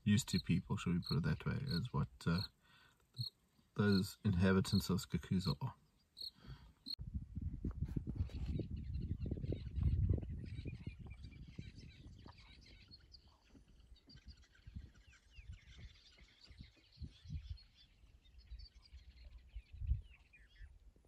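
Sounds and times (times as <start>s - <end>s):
birds chirping and calling: 0.0s - 7.0s, 8.2s - 21.0s.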